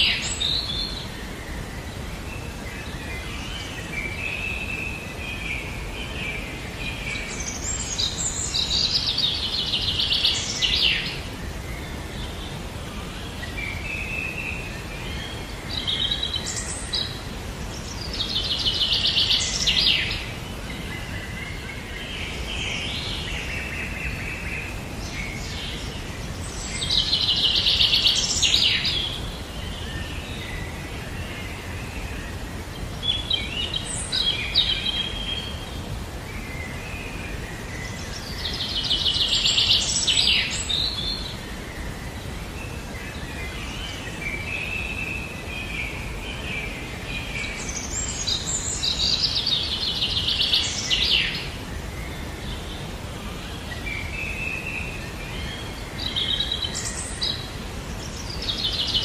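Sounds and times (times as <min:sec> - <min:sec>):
low outdoor background noise: 0:00.0 - 0:59.0.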